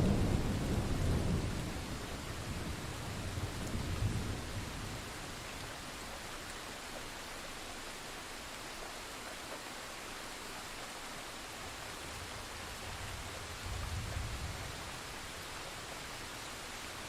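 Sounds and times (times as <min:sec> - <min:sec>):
thunder rumble: 0:00.0 - 0:05.1
heavy rain hiss: 0:00.0 - 0:17.0.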